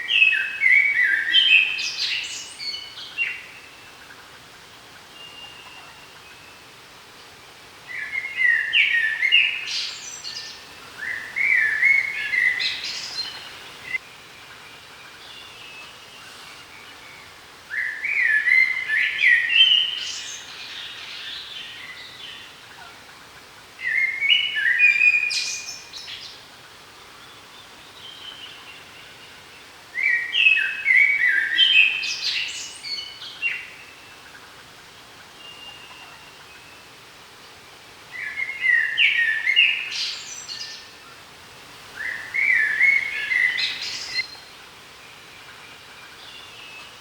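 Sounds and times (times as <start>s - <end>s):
songbird singing: 0.0s - 47.0s
faint bird notes: 10.4s - 14.0s, 41.6s - 44.6s.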